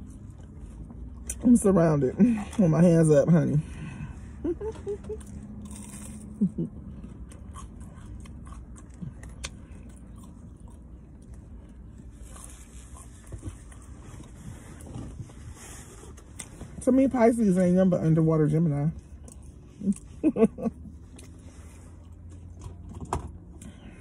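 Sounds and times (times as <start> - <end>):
person chewing fried food: 5.0 - 15.2, 19.1 - 23.8.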